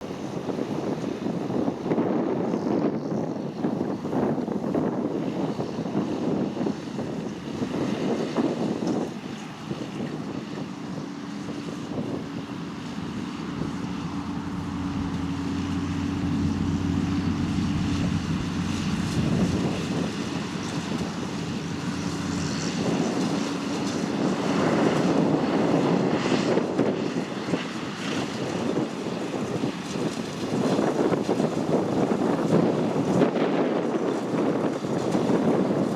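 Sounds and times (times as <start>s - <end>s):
tractor engine drone: 6.1s - 33.2s.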